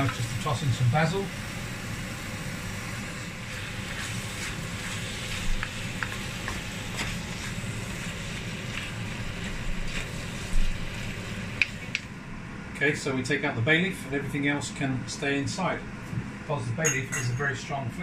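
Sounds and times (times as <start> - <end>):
chicken sizzling in a wok: 0.0 - 12.0
wooden spatula scraping a pan: 3.6 - 10.8.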